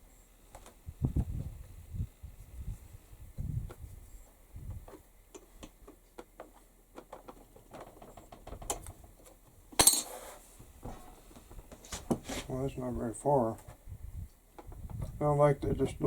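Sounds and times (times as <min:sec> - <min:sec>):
scrape or rustle: 0:09.9 - 0:12.6.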